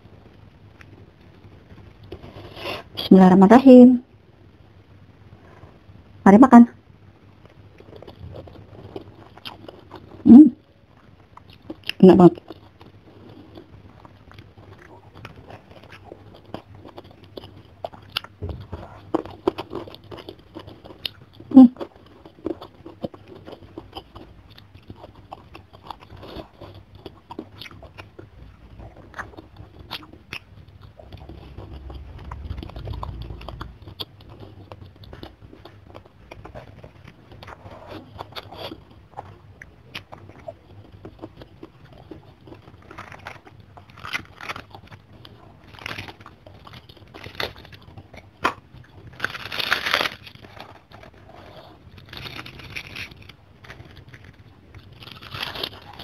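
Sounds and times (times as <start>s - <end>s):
close chewing and mouth sounds: 0.0s - 3.1s, 6.9s - 56.0s
crunchy bites: 11.3s - 56.0s.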